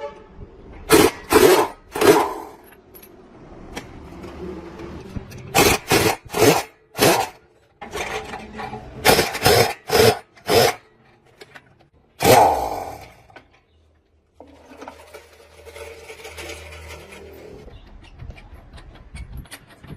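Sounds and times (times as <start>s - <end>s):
hand tool rasping strokes: 0.9s - 2.6s, 9.0s - 10.8s.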